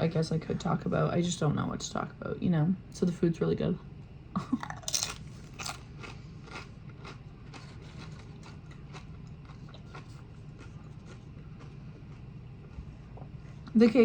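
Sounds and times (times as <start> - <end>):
low room hum: 0.0 - 14.0
chewing: 4.6 - 12.3.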